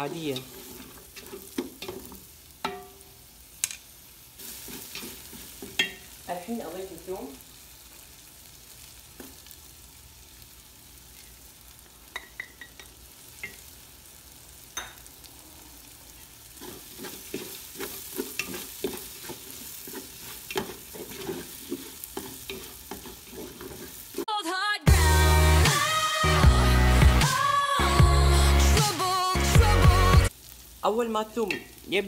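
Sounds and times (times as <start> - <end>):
wooden spatula scraping a pot: 0.0 - 2.3, 4.4 - 5.9, 16.4 - 24.3
onions sizzling in oil: 0.0 - 32.0.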